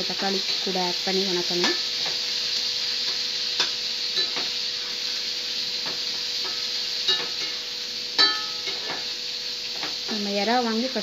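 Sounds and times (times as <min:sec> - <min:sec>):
food sizzling in hot oil: 0:00.0 - 0:11.0
spatula scraping and clinking on pan: 0:03.6 - 0:04.6, 0:05.8 - 0:07.6, 0:08.2 - 0:09.1.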